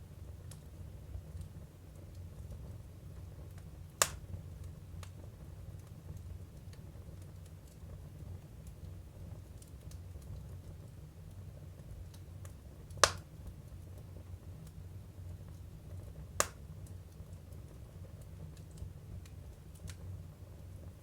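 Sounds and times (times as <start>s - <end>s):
low rumble of fire: 0.0s - 21.0s
small crackles: 0.2s - 21.0s
firewood popping: 4.0s - 4.2s, 12.1s - 13.3s, 16.3s - 16.6s.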